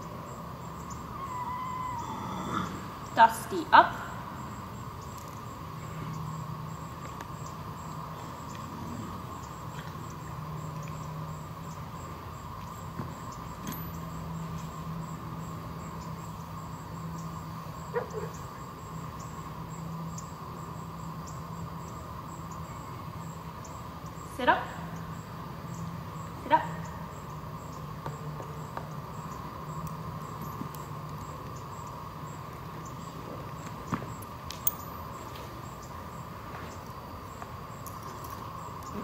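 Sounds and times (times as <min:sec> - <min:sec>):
steady background hum: 0:00.0 - 0:39.0.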